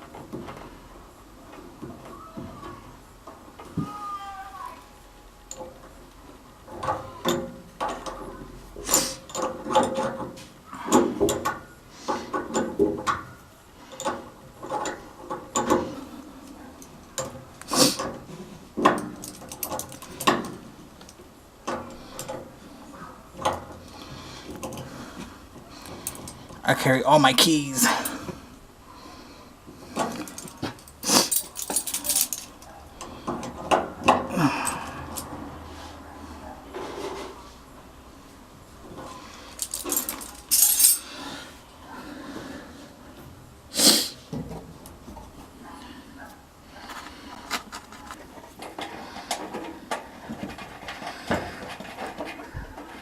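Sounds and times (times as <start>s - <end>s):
metal parts and tools clacking: 18.8s - 20.6s, 30.0s - 32.7s, 39.5s - 41.1s
keys jangling: 19.0s - 20.3s, 30.2s - 32.7s, 39.5s - 41.1s.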